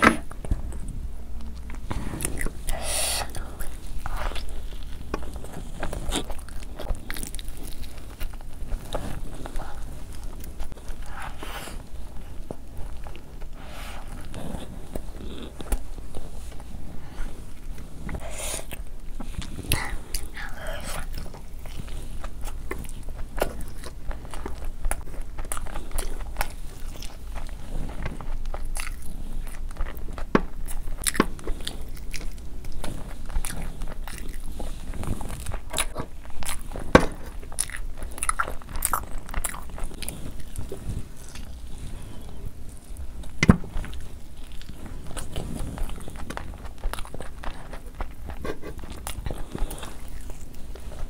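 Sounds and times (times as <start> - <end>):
biting and chewing: 0.0 - 51.0.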